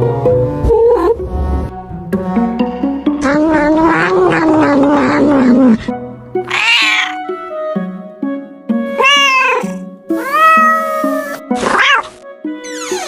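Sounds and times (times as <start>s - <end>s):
background music: 0.0s - 13.0s
cat meowing: 6.4s - 7.3s, 8.9s - 12.1s.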